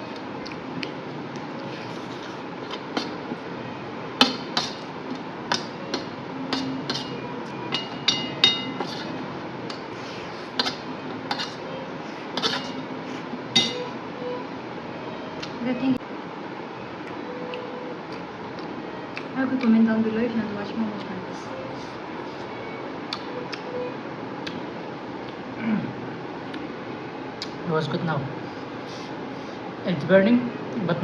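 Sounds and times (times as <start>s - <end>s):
utensils clinking against a dish: 5.5s - 9.8s, 10.6s - 11.7s, 12.4s - 12.9s, 13.6s - 13.9s.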